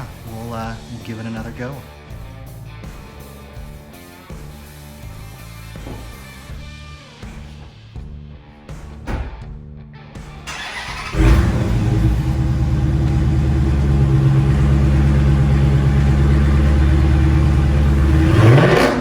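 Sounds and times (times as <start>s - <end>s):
car exhaust revving: 10.5s - 19.0s.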